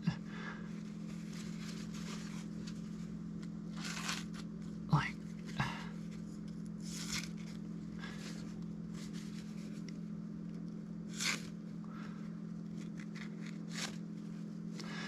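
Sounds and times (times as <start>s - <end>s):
low hum: 0.0s - 15.0s
knife tearing paper towel: 3.7s - 4.5s, 6.8s - 7.6s, 11.0s - 11.6s, 12.7s - 14.0s.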